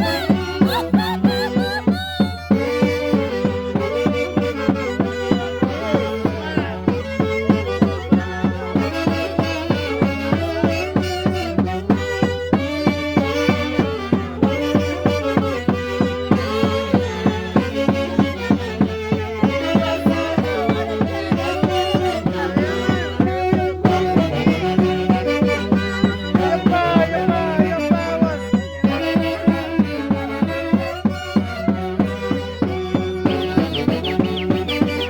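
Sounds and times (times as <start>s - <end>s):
steady drum beat: 0.0s - 3.5s, 32.3s - 35.0s.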